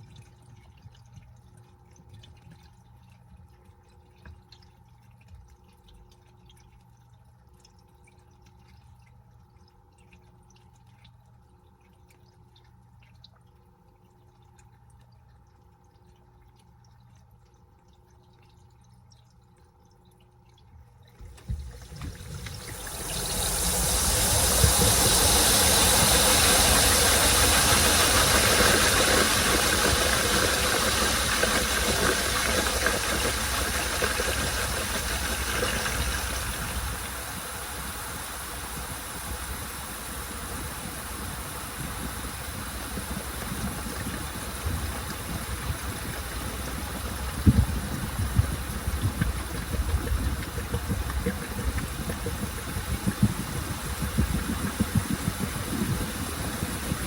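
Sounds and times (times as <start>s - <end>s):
faint steady hum: 0.0s - 57.0s
washing machine rushing: 21.1s - 57.0s.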